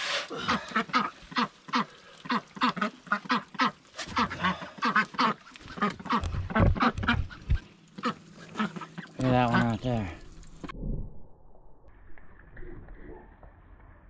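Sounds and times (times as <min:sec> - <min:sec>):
ducks quacking: 0:00.4 - 0:10.1.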